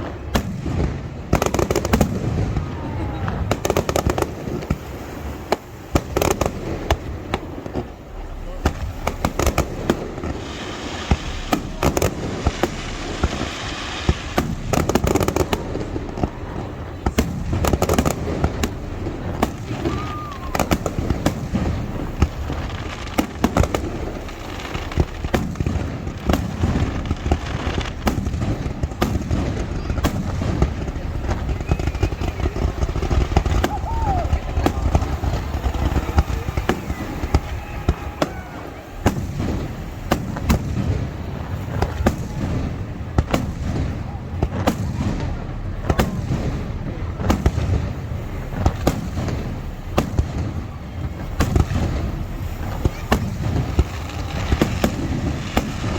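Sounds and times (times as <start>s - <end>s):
fireworks bursts and booms: 0.0s - 55.9s
low rumble: 0.0s - 55.9s.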